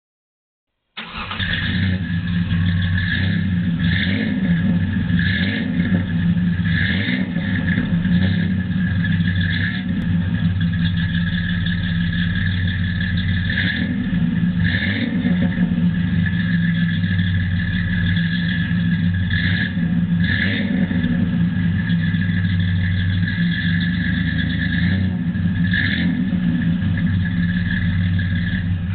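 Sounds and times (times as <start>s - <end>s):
deep exhaust rumble: 1.0s - 28.9s.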